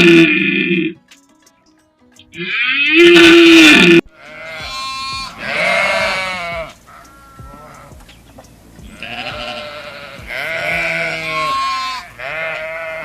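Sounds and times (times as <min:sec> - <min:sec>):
sheep bleating: 0:02.4 - 0:08.0, 0:08.8 - 0:13.0.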